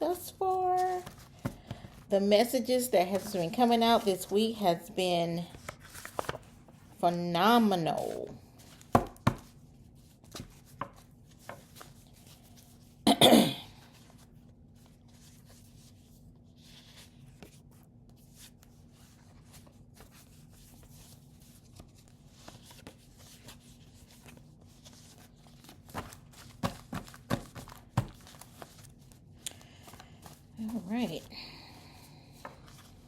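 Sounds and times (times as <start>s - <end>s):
person coughing: 13.0s - 13.8s.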